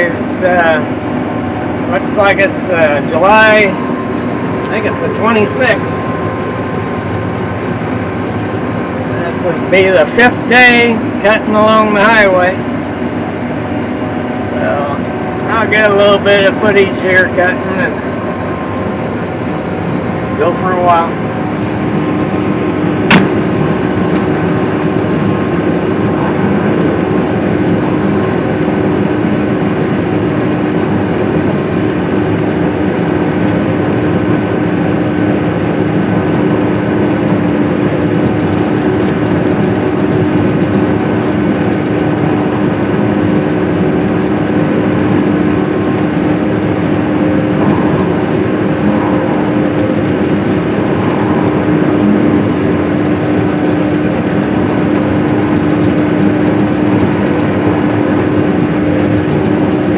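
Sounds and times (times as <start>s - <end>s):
swather engine humming: 0.0s - 59.9s
sharp click: 23.1s - 23.4s.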